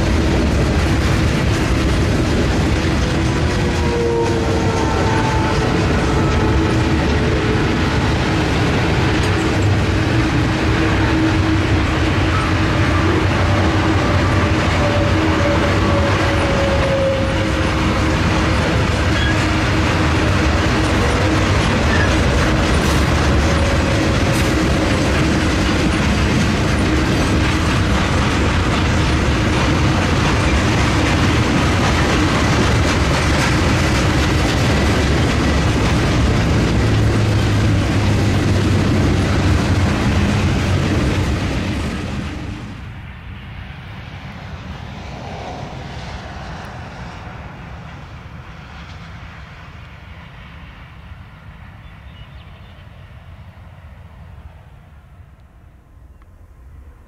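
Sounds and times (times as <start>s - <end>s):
wheels clattering over rail joints: 0.0s - 42.5s.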